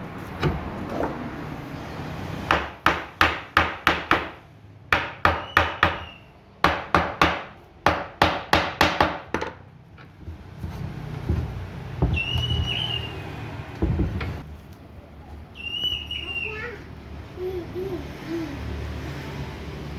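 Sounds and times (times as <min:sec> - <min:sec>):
hammer striking wood: 0:02.5 - 0:09.6.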